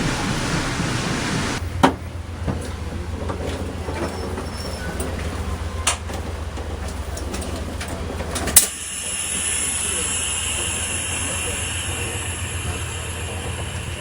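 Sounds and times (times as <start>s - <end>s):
loud rushing noise: 0.0s - 1.6s
train interior rumble: 0.0s - 14.0s.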